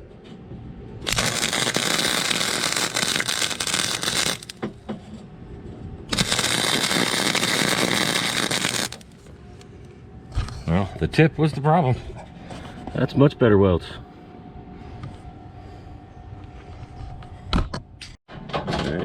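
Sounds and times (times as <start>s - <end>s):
welder arc crackling: 1.0s - 4.6s, 6.1s - 9.3s.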